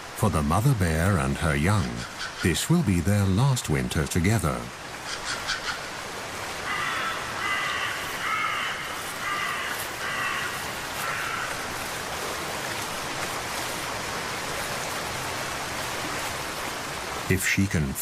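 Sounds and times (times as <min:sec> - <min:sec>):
crow cawing: 0:05.0 - 0:05.9, 0:06.6 - 0:11.7.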